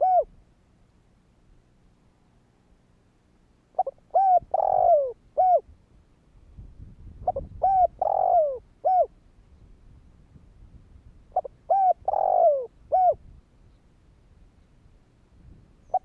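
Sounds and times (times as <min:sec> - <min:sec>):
dove cooing: 0:00.0 - 0:00.3, 0:03.8 - 0:05.6, 0:07.2 - 0:09.1, 0:11.3 - 0:13.2.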